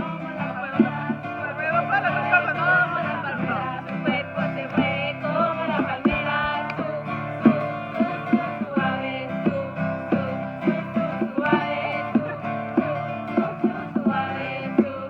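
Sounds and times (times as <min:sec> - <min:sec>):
person singing praise song: 0:00.0 - 0:15.0
strummed acoustic guitar: 0:00.0 - 0:15.0.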